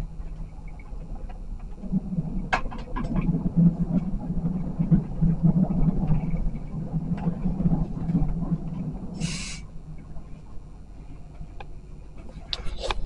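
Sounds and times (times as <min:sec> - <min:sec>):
short hiss: 0:09.2 - 0:09.6.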